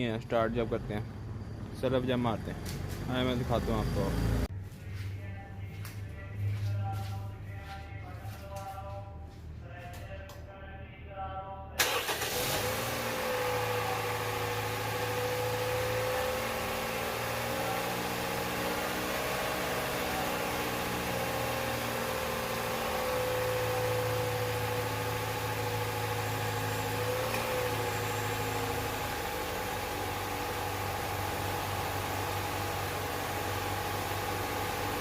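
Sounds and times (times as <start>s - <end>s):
car engine idling: 11.8s - 35.0s.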